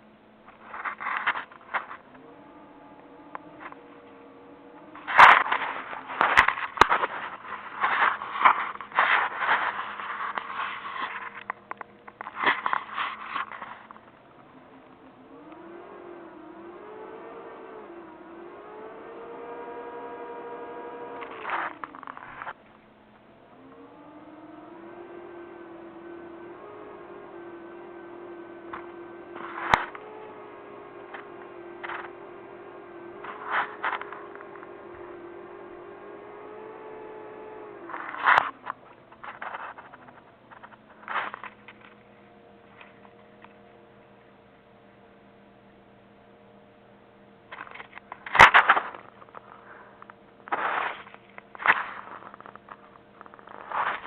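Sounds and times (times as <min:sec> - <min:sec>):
crackling and rustling: 0:00.0 - 0:44.2, 0:47.4 - 0:54.0
steady hum: 0:00.0 - 0:54.0
short noisy sounds: 0:47.5 - 0:54.0.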